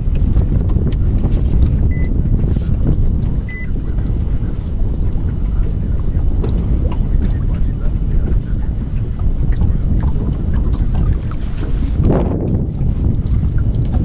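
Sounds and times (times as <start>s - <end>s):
wind buffeting microphone: 0.0s - 14.0s
faint high beeps: 1.9s - 2.1s, 3.5s - 3.7s.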